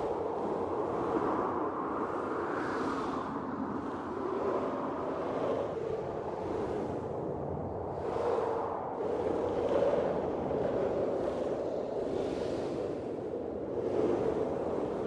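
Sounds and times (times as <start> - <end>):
gusting blizzard wind: 0.0 - 15.0.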